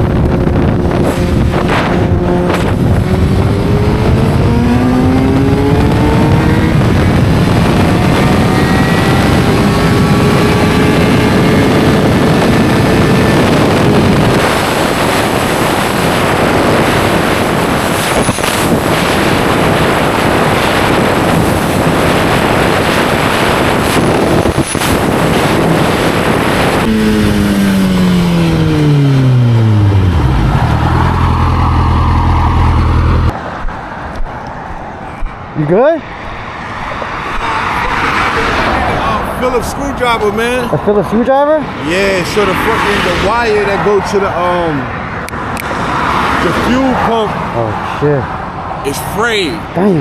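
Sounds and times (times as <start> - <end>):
motorcycle engine: 0.0 - 33.4
wind rush on microphone: 0.0 - 48.9.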